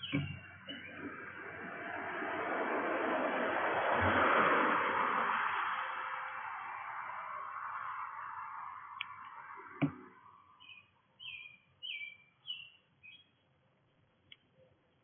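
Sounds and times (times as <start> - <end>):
bird chirping: 0.0 - 1.1, 9.0 - 15.0
rush of noise: 0.0 - 10.6.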